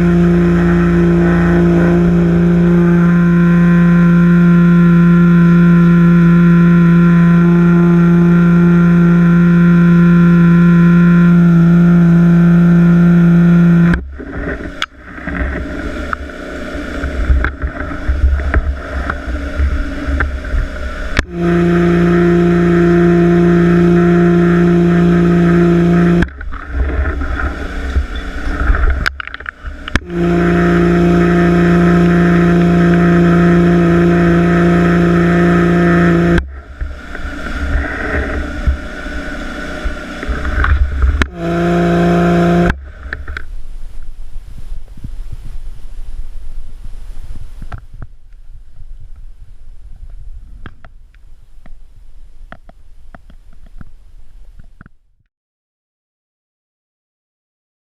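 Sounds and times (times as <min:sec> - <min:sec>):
rough uneven noise: 0:00.0 - 0:46.0.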